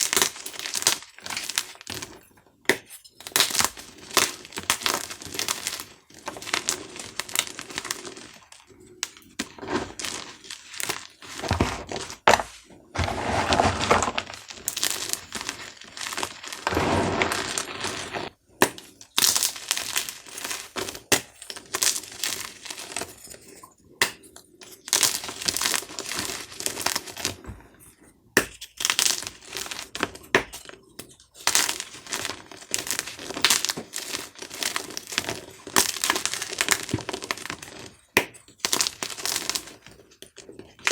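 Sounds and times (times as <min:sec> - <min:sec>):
chalk crushed crunchy crackling: 0:10.9 - 0:18.4.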